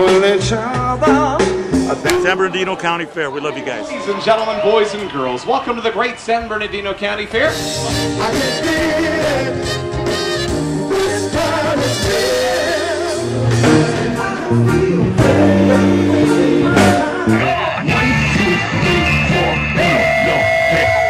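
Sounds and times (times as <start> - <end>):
lead vocal singing: 0.0 - 2.2, 7.8 - 21.0
band playing a song: 0.0 - 4.2, 6.1 - 21.0.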